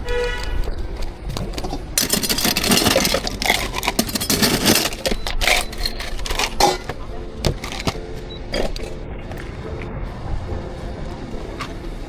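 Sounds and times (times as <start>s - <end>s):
coffee equipment clicks and scrapes: 0.0s - 8.0s.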